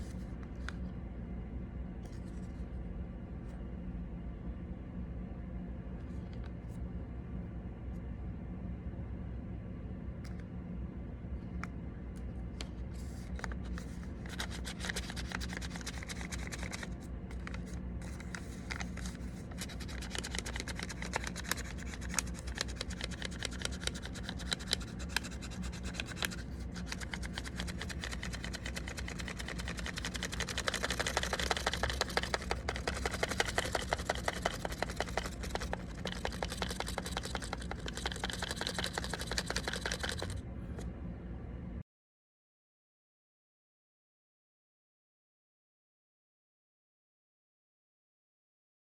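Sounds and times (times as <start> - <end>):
paper rustling and crinkling: 12.9 - 40.4
small crackles and rapid ticks: 14.3 - 40.4.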